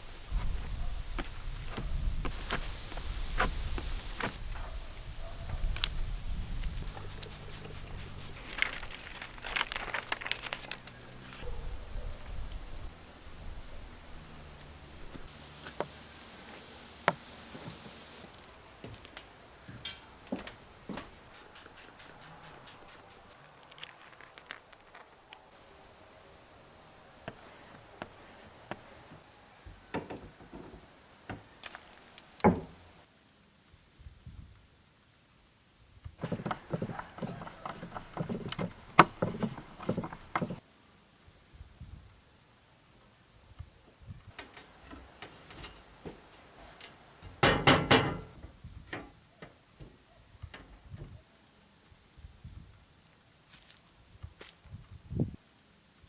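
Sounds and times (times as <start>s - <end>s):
light clicks and knocks: 36.2s - 40.6s.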